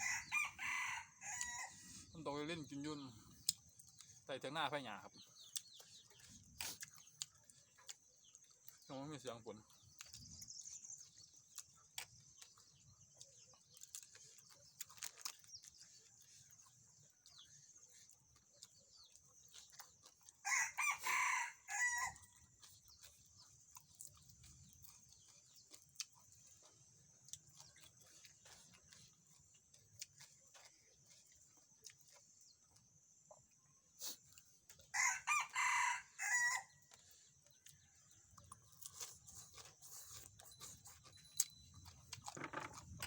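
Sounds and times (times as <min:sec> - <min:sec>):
rooster crowing: 0:00.0 - 0:01.9, 0:20.4 - 0:22.2, 0:34.9 - 0:36.8.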